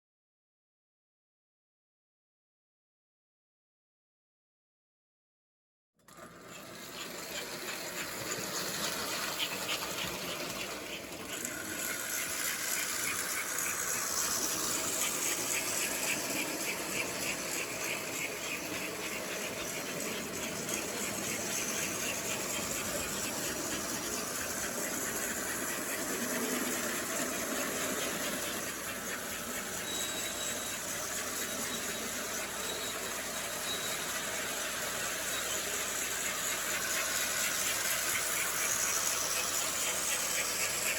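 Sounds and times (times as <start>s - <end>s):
model train motor whir: 6.0s - 40.9s
wheels clicking over track: 6.0s - 40.9s.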